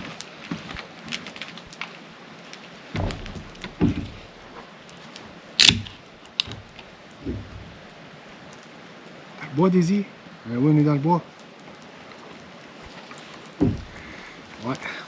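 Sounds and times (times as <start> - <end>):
rain hissing: 0.0 - 15.0
dull thumps: 2.9 - 4.6, 5.6 - 7.9, 13.6 - 14.4.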